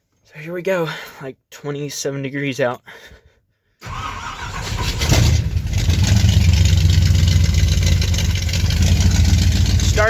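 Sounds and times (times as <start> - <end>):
engine fast idle: 3.8 - 10.0
truck engine starting: 3.8 - 10.0.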